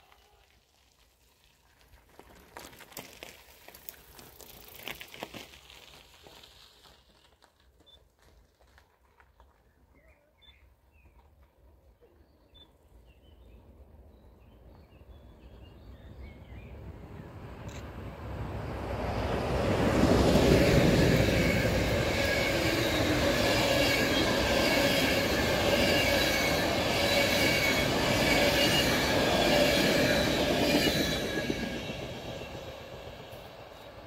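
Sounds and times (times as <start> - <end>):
passenger train passing: 13.5 - 34.0
wheels rumbling on rails: 14.7 - 34.0.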